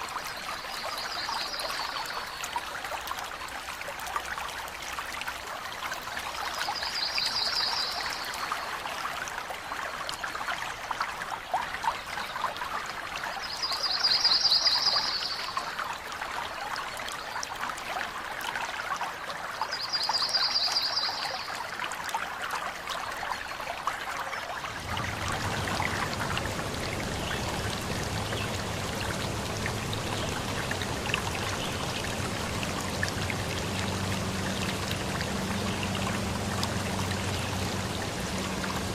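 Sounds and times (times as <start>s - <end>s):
stream trickling over rocks: 0.0s - 38.9s
trilled bird calls: 24.7s - 38.9s.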